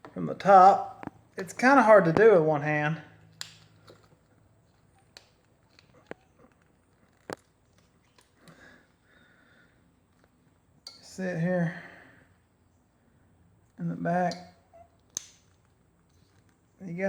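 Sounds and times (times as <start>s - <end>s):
soft rustling: 3.0s - 17.0s
faint sharp clicks and taps: 3.2s - 11.1s.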